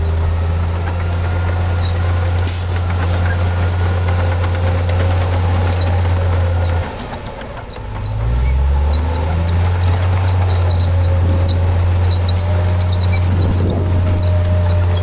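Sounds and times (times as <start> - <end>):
heavy diesel engine droning: 0.0 - 15.0.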